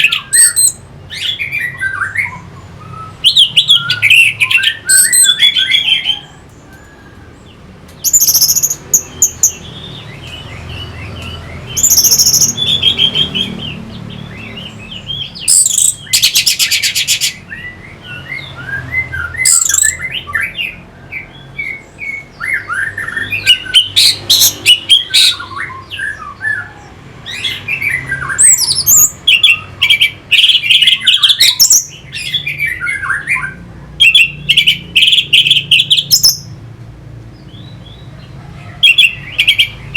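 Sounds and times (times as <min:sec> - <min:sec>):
buzzy bird trill: 0:08.0 - 0:20.7.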